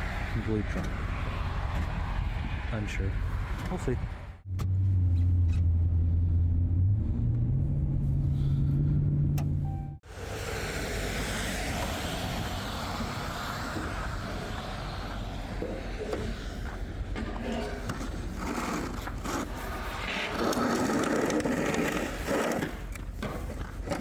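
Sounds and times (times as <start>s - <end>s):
steady rushing noise: 10.1s - 17.3s.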